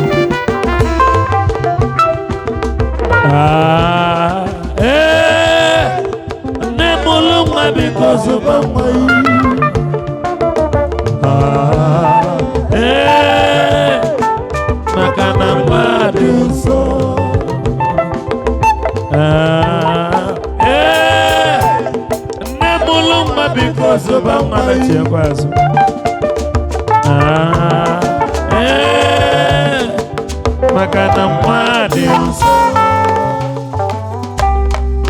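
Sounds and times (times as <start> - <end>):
long wavering lead notes: 0.0 - 3.7, 31.3 - 35.0
live band music: 0.0 - 35.0.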